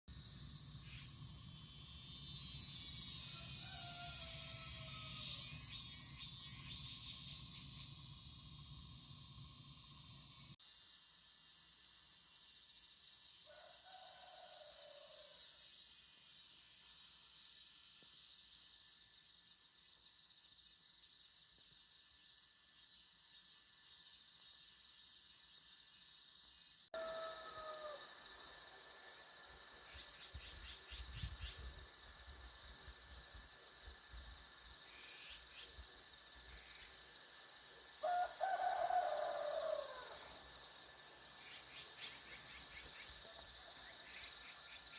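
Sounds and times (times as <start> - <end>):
cicadas droning: 0.1 - 44.9
insects chirping: 0.1 - 44.9
rooster crowing: 3.3 - 5.6, 13.5 - 15.4, 27.0 - 28.2, 38.0 - 40.4.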